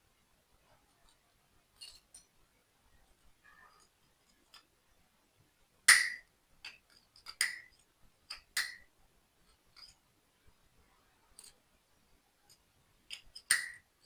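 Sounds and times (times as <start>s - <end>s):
clicks of toy parts fitted together: 8.3s - 8.8s, 13.1s - 13.8s.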